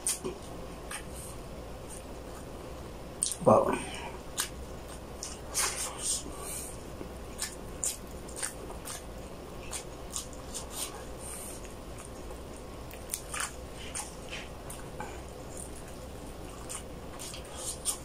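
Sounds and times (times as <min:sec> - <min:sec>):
person chewing: 0:00.0 - 0:02.5, 0:03.2 - 0:03.4, 0:04.0 - 0:18.0
mouth clicks and smacks: 0:03.2 - 0:03.4, 0:07.4 - 0:09.1.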